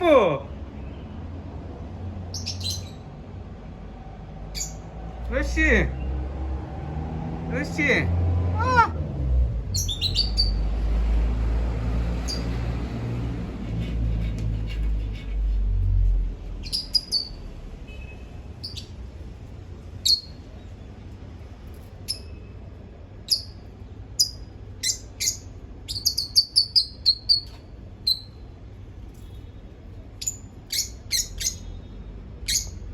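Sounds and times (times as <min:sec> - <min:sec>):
bird chirping: 0:02.3 - 0:03.2, 0:04.5 - 0:04.9, 0:09.7 - 0:10.8, 0:12.0 - 0:13.0, 0:16.4 - 0:19.1, 0:20.0 - 0:21.1, 0:21.7 - 0:22.6, 0:23.2 - 0:28.5, 0:29.2 - 0:32.9.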